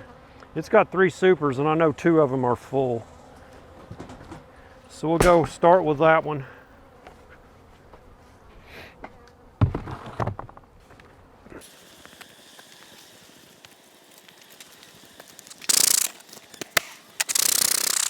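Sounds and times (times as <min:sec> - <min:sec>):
bursts of hiss: 0:11.6 - 0:18.0.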